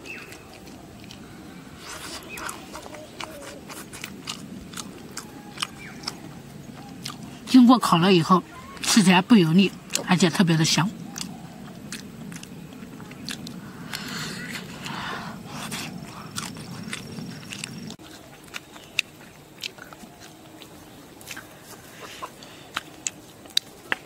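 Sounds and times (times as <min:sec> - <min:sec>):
person chewing: 0:00.0 - 0:07.6, 0:09.6 - 0:10.2, 0:11.0 - 0:24.0
wet mouth sounds: 0:11.1 - 0:20.4.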